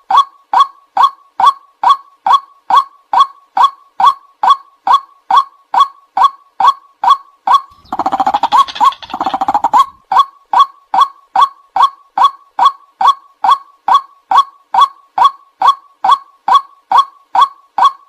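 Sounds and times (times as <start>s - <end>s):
waterhen calling: 7.7s - 10.0s.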